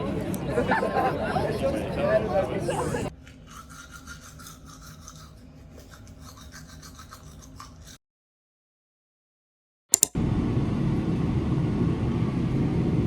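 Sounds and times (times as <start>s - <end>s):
sharp click: 9.9s - 10.2s.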